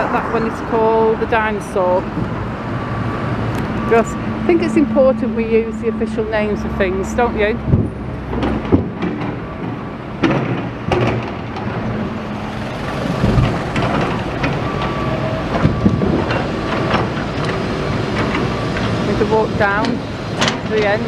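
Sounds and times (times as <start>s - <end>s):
traffic and machinery engines: 0.0s - 21.0s
sharp clanks and knocks: 7.7s - 17.6s, 19.6s - 21.0s.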